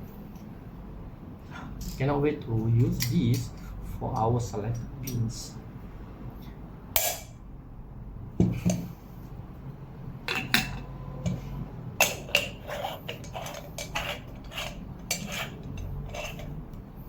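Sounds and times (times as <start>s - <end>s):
metal coffee pot parts clinking: 12.0s - 16.6s.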